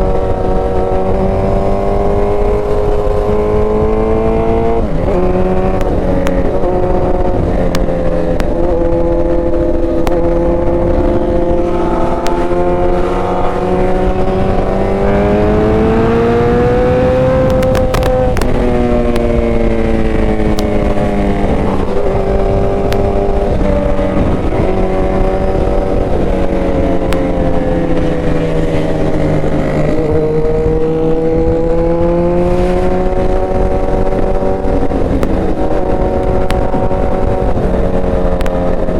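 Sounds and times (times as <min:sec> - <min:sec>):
motorcycle engine while riding: 0:00.0 - 0:38.9
wind rushing: 0:00.0 - 0:38.9.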